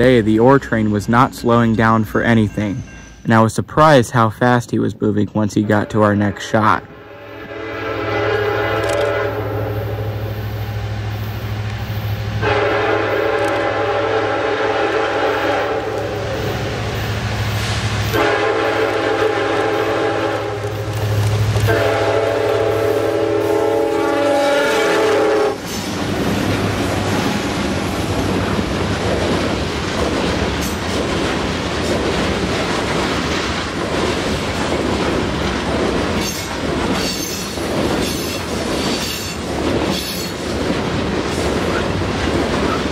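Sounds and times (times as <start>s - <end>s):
locomotive engine rumble: 0.0s - 3.2s, 5.0s - 42.9s
train cars rolling past: 0.0s - 42.9s
train air horn blasts: 5.6s - 10.4s, 12.4s - 16.5s, 18.0s - 20.9s, 21.6s - 25.8s.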